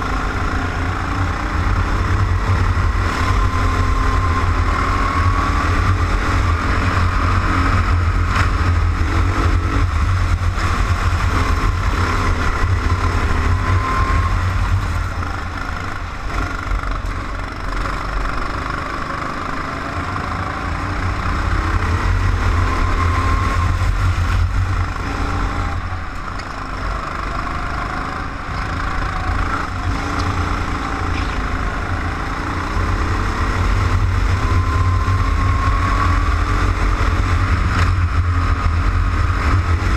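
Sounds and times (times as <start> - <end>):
wind rumble on microphone: 0.0 - 17.5, 28.4 - 39.9
go-kart engine revving: 0.0 - 39.9.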